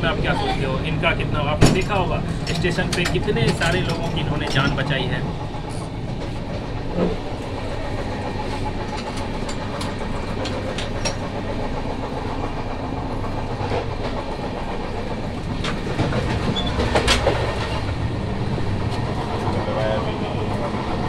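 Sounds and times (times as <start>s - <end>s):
train coach low rumble: 0.0s - 21.0s
wheels clicking over rail joints: 1.3s - 21.0s
clatter of knocks: 1.6s - 4.9s, 15.6s - 17.9s.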